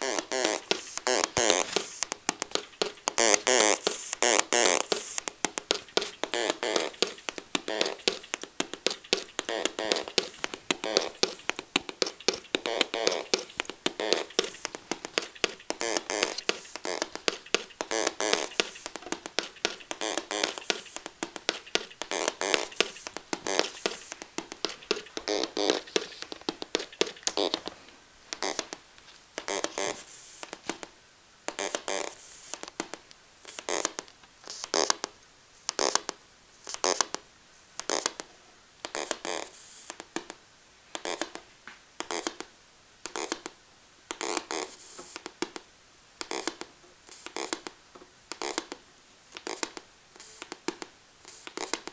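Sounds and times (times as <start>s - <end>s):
buzzy electronic bursts: 0.0s - 27.7s.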